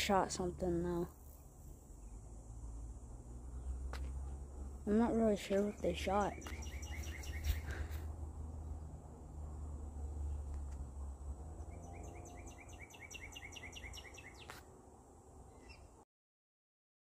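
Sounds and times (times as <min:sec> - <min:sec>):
songbird trilling chirps: 0:04.9 - 0:08.0, 0:11.5 - 0:14.7, 0:15.4 - 0:16.0.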